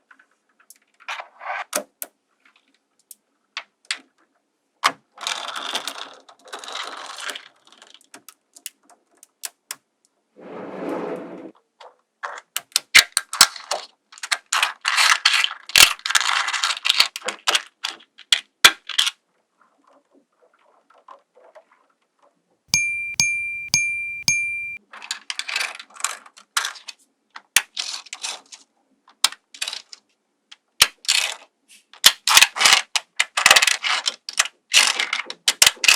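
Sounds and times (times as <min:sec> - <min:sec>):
high ringing ding: 0:22.7 - 0:24.8
magnetic balls clicking: 0:22.7 - 0:24.8.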